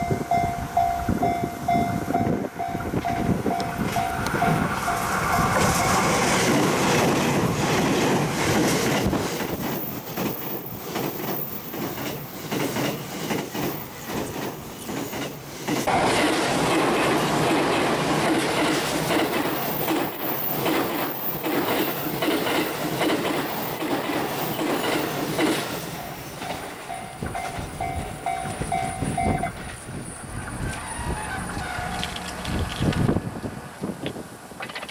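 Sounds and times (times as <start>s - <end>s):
wind buffeting microphone: 0.0s - 11.0s, 24.8s - 34.6s
electric train running past: 0.0s - 33.9s
train wheels clattering over rail joints: 5.6s - 30.7s.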